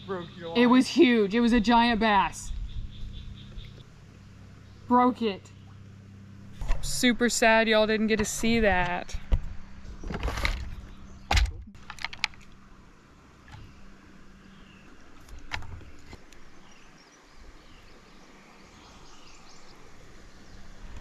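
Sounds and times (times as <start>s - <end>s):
creek background: 0.0s - 21.0s
bird chirps: 2.4s - 3.8s.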